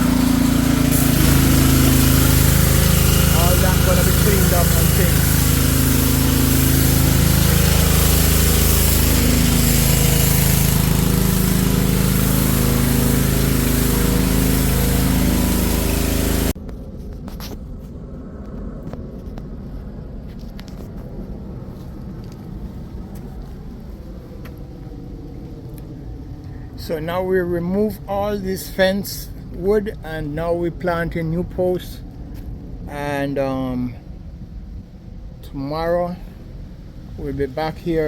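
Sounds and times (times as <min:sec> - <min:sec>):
pressure washer engine running: 0:00.0 - 0:16.6
water spray hissing: 0:00.0 - 0:16.6.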